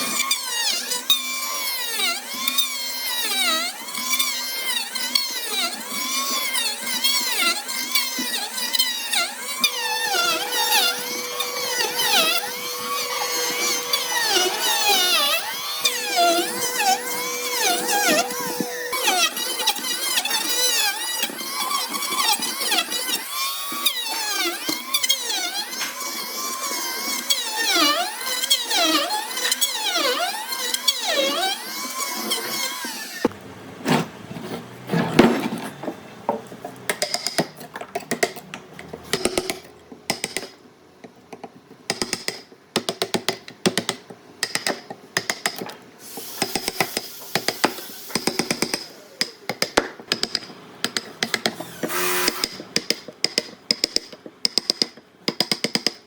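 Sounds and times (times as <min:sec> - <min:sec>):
tool tapping on wood: 0:35.8 - 0:56.0.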